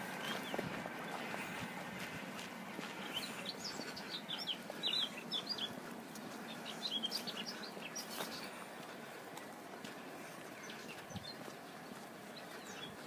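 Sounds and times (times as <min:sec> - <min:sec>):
small songbird chirping: 0:02.9 - 0:08.6, 0:09.4 - 0:13.0.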